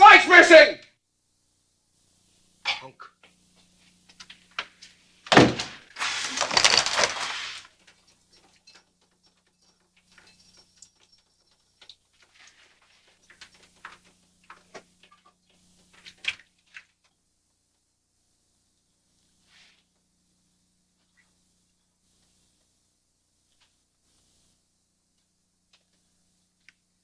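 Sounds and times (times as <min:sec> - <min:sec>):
loud rustling: 0:05.2 - 0:07.8.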